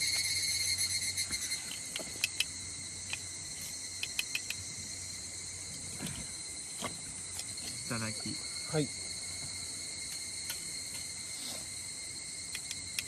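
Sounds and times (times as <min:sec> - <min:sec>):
crickets trilling: 0:00.0 - 0:13.0
sharp clicks: 0:01.7 - 0:03.3, 0:04.0 - 0:04.6, 0:12.5 - 0:13.0.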